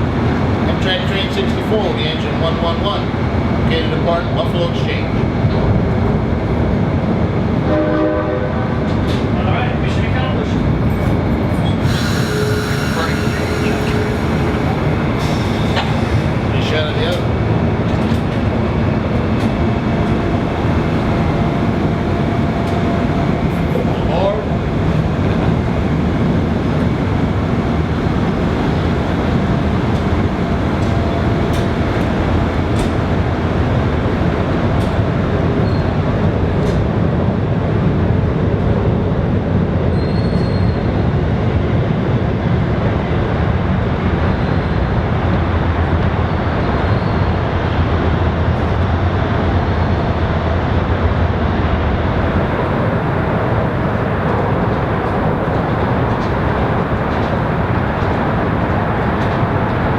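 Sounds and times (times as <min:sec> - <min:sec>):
train engine and wheels rumbling: 0:00.0 - 0:59.9
faint high squeals: 0:11.6 - 0:16.3, 0:39.9 - 0:40.9.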